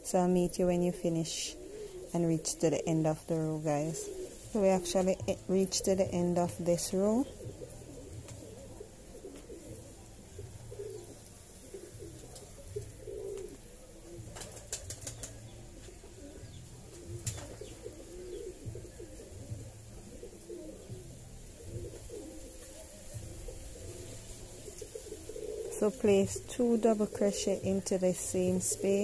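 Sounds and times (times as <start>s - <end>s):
faint bird calls: 14.8s - 20.9s.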